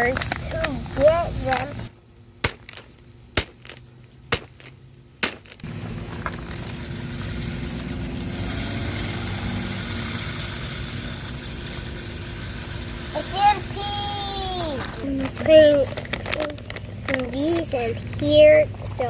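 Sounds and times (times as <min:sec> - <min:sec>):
nuts cracking: 0:02.4 - 0:13.1.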